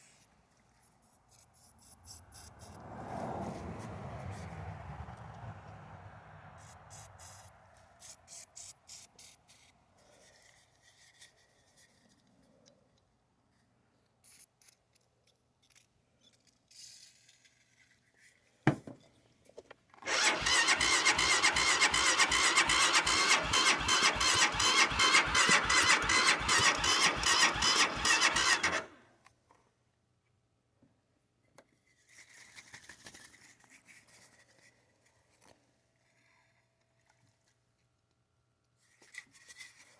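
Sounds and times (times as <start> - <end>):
engine cranking on starter: 20.0 - 29.0.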